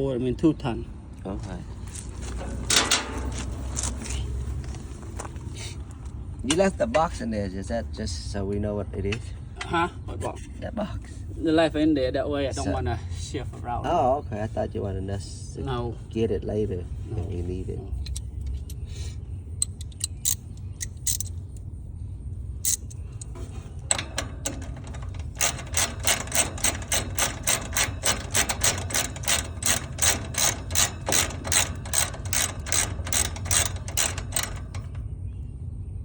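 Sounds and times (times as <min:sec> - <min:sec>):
ratchet wrench clicking: 0:19.6 - 0:21.4, 0:22.6 - 0:35.0.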